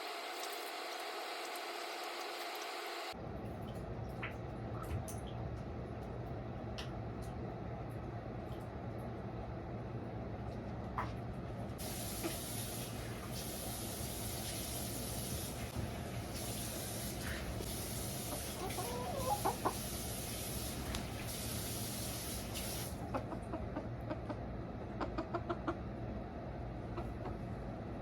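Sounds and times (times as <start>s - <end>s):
hen clucking softly: 18.3s - 19.9s, 23.1s - 25.9s, 26.9s - 27.5s.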